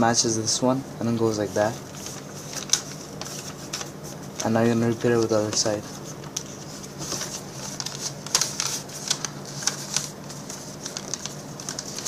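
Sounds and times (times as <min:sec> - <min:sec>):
paper being folded and creased: 0:01.3 - 0:12.0.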